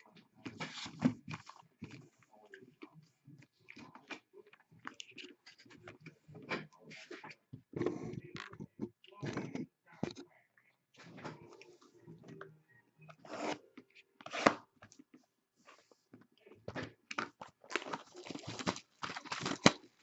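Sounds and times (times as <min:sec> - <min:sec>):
plastic packaging tearing and crinkling: 0:17.2 - 0:20.0.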